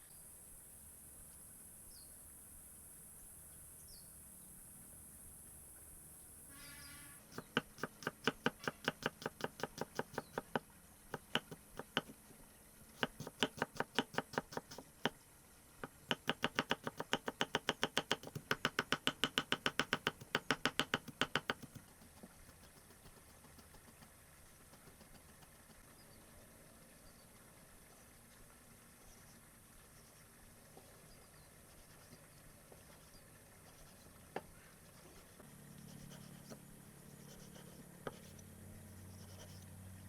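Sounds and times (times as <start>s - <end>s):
knife chopping on cutting board: 7.3s - 12.1s, 13.0s - 15.1s, 15.8s - 24.1s.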